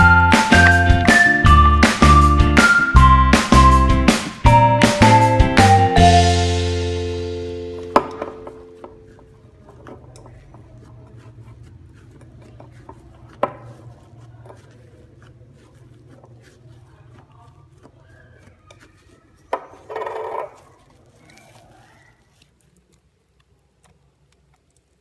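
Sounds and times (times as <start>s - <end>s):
slime squelch: 8.6s - 25.0s.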